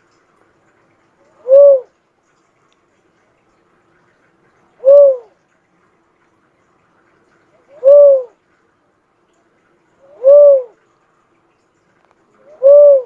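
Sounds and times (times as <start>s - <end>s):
dove cooing: 1.3s - 1.9s, 4.8s - 5.4s, 7.6s - 8.4s, 10.0s - 10.8s, 12.4s - 13.0s.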